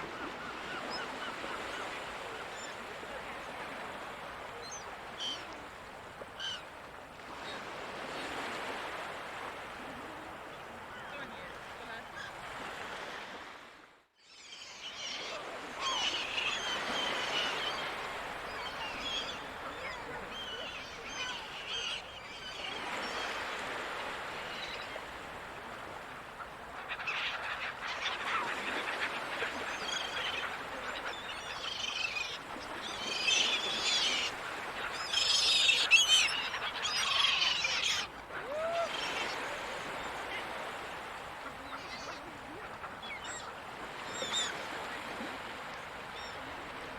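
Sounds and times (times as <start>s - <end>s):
seagulls calling: 0.0s - 3.0s, 14.4s - 25.2s, 26.3s - 45.2s
ocean surf: 0.0s - 13.9s, 14.8s - 46.9s.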